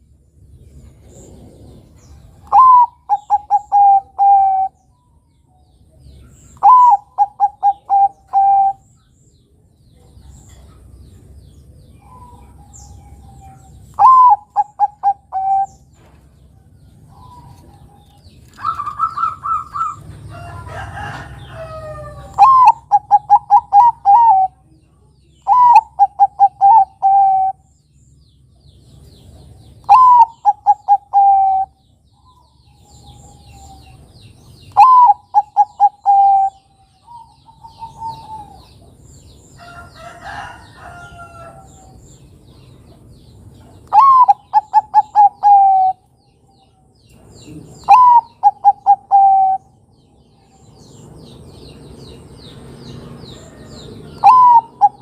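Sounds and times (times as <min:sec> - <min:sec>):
small birds twittering: 0:00.0 - 0:55.0
dove cooing: 0:02.4 - 0:04.8, 0:06.6 - 0:08.8, 0:12.0 - 0:15.8, 0:20.7 - 0:24.6, 0:25.4 - 0:27.6, 0:29.8 - 0:31.8, 0:34.7 - 0:38.9, 0:43.8 - 0:46.0, 0:47.5 - 0:49.7, 0:53.6 - 0:55.0.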